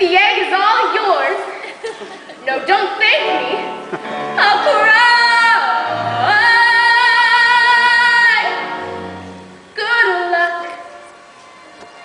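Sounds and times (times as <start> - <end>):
musical accompaniment: 2.7 - 12.0
woman singing with vibrato: 4.4 - 8.9, 9.8 - 10.9.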